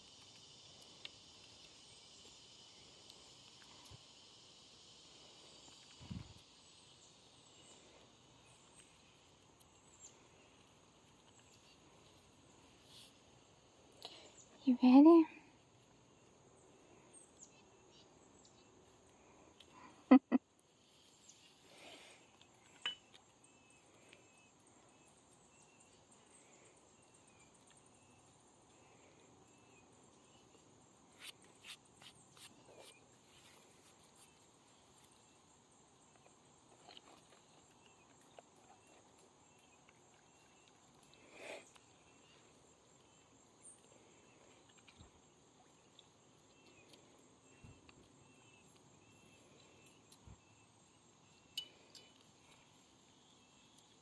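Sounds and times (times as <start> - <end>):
high insect drone: 0.0 - 36.6
faint chirps: 0.0 - 54.0.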